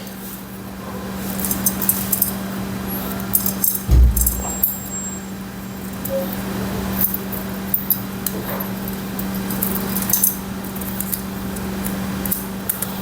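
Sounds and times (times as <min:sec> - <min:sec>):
steady low hum: 0:03.9 - 0:05.5.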